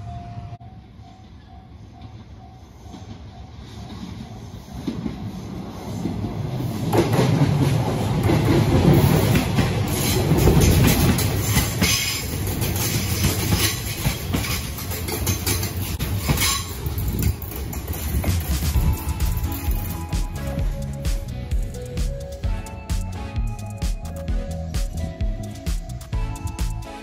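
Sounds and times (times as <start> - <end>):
electric train passing: 0.0 - 27.0
train wheels clattering over rail joints: 6.0 - 20.1.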